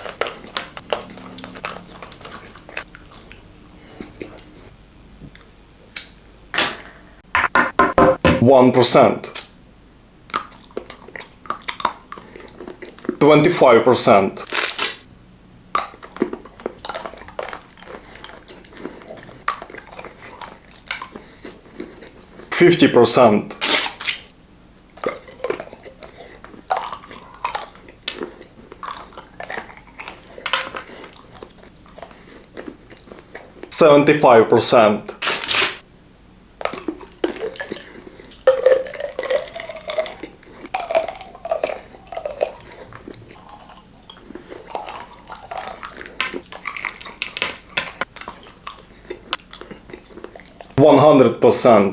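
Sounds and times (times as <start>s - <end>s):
person chewing crunchy chocolate: 0.0s - 4.7s, 10.3s - 13.2s, 15.7s - 22.6s, 24.9s - 33.7s, 36.6s - 50.8s.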